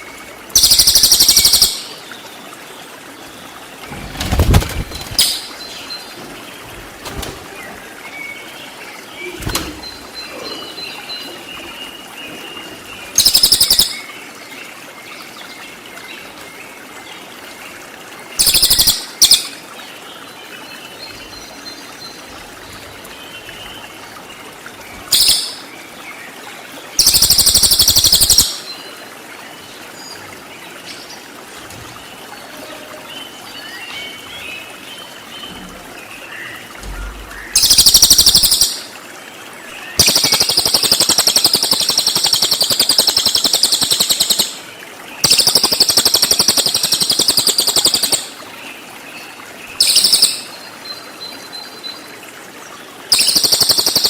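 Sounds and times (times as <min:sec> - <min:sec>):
rapid buzzy rattling bird calls: 0:00.5 - 0:01.9, 0:03.7 - 0:10.8, 0:13.2 - 0:14.0, 0:18.4 - 0:19.5, 0:24.8 - 0:25.6, 0:27.0 - 0:28.8, 0:35.3 - 0:38.9, 0:39.7 - 0:48.5, 0:49.2 - 0:50.5, 0:53.1 - 0:54.0.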